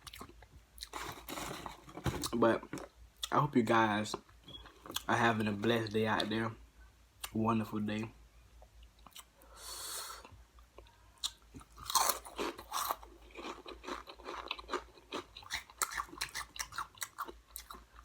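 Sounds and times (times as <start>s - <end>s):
crisp snack crunching: 11.7s - 17.9s.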